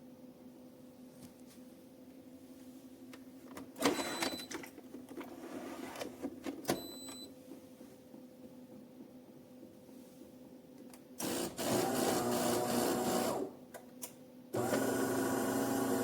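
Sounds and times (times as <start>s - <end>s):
espresso machine humming: 11.2s - 13.5s, 14.6s - 16.0s.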